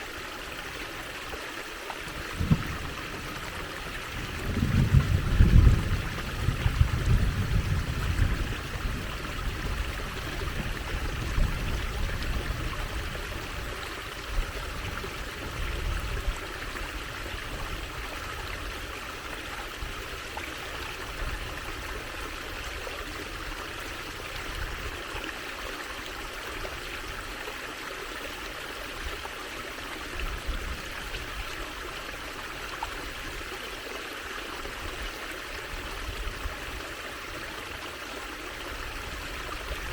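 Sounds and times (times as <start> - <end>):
stream trickling over stones: 0.0 - 39.9
low underwater rumble: 2.1 - 13.5.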